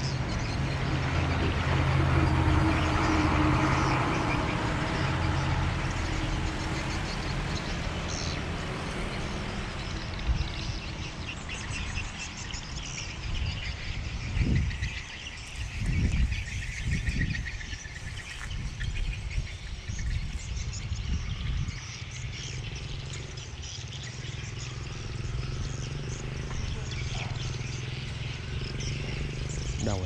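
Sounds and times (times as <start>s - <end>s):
small birds chirping: 5.3s - 30.0s
low rumbles: 24.5s - 30.0s.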